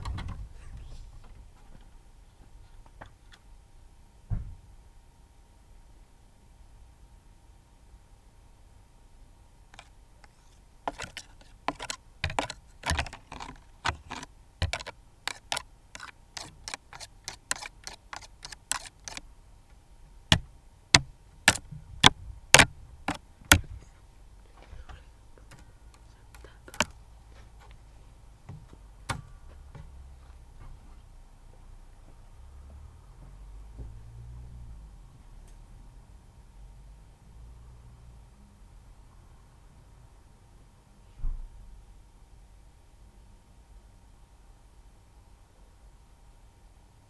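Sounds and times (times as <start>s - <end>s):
sharp clicks or taps: 9.8s - 19.2s, 20.3s - 23.7s, 25.5s - 27.0s.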